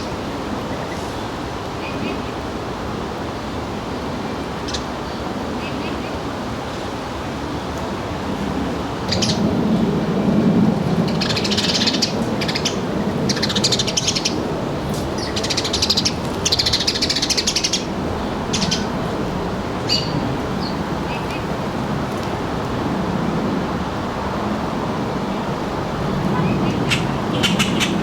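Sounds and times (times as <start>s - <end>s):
low background rumble: 8.4s - 28.0s
small birds chirping: 9.0s - 22.5s, 26.3s - 28.0s.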